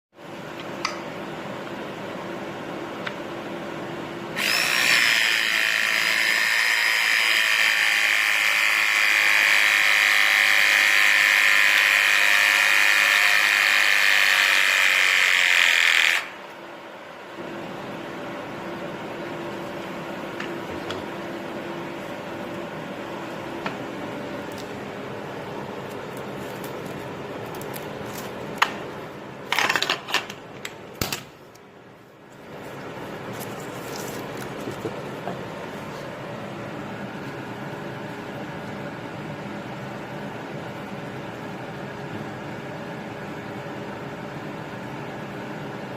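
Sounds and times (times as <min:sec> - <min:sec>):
pipe press tool whining: 0:04.4 - 0:16.6
steady hum: 0:16.2 - 0:45.9.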